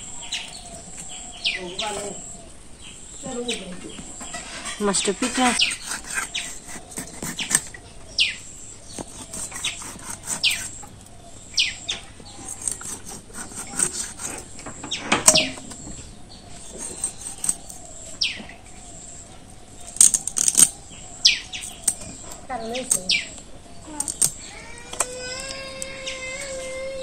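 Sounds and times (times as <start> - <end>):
fish being scaled and cut: 5.4 - 7.8, 9.0 - 10.9, 12.4 - 14.5, 16.6 - 17.9
falling whistle bird calls: 14.9 - 22.4.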